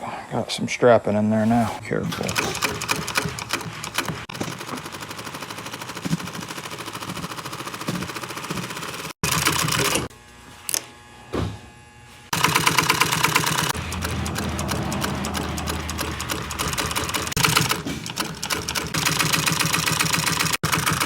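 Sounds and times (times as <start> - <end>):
sewing machine clattering: 2.1 - 10.1, 12.3 - 21.0.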